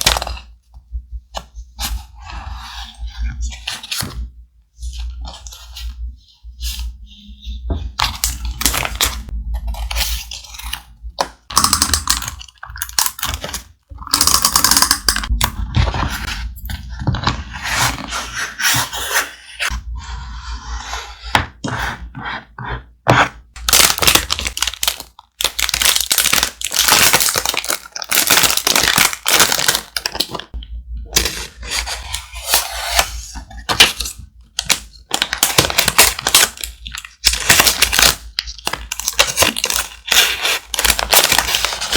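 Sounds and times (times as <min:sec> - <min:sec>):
thick paper crinkling: 0:31.2 - 0:41.9.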